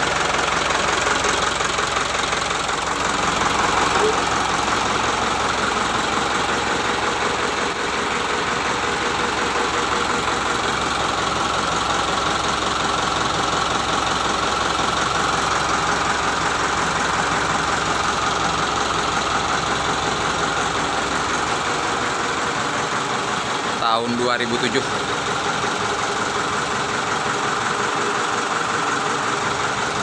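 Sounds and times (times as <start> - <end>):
diesel truck engine idling: 0.0 - 30.0.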